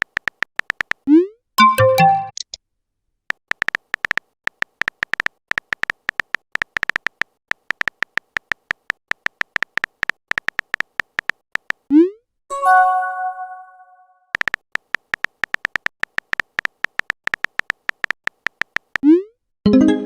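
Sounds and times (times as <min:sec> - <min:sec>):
phone keyboard typing ticks: 0:00.0 - 0:02.5, 0:03.3 - 0:11.9, 0:14.3 - 0:19.2.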